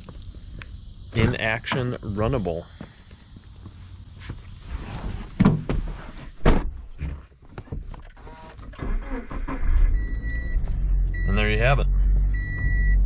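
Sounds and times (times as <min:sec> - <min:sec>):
sharp clunks and thumps: 0:05.1 - 0:09.0
low rumble: 0:09.4 - 0:13.0.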